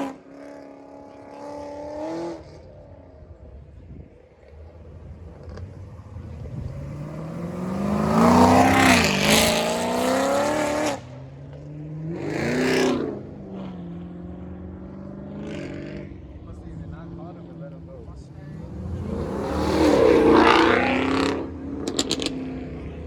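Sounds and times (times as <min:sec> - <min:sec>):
car engine revving: 0:04.6 - 0:11.2, 0:12.0 - 0:23.0.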